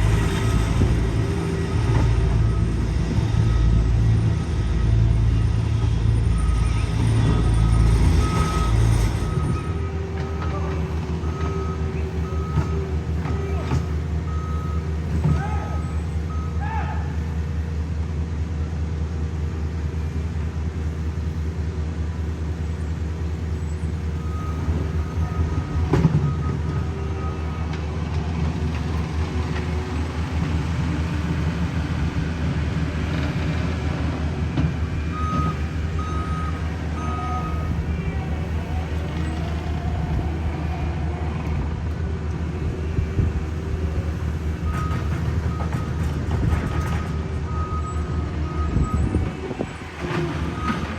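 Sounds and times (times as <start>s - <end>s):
diesel engines of paving equipment: 0.0s - 50.9s
reversing alarm beeping: 0.2s - 16.6s, 24.2s - 27.8s, 35.1s - 40.6s, 44.6s - 50.9s.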